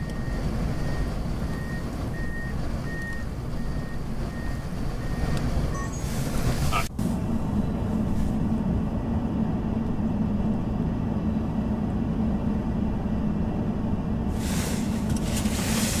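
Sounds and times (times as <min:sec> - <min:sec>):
vehicle low rumble: 0:00.0 - 0:16.0.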